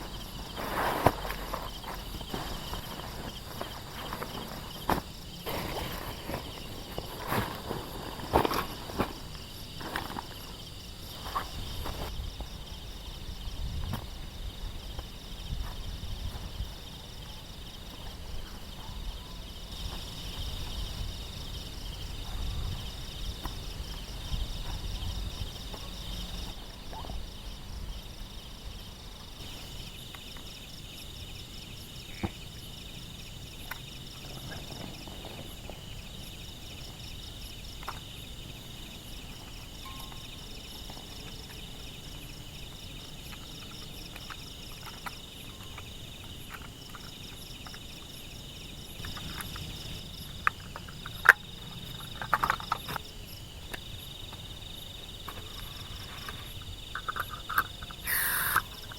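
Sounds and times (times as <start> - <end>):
insects chirping chorus: 0.0 - 58.9.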